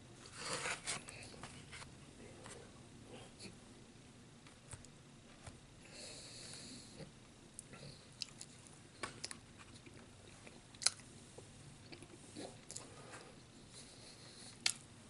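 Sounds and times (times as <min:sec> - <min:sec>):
faint chewing: 0:06.4 - 0:14.8.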